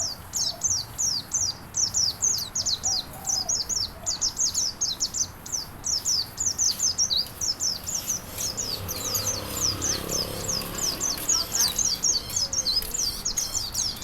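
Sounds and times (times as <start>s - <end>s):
songbird chattering: 0.0s - 14.0s.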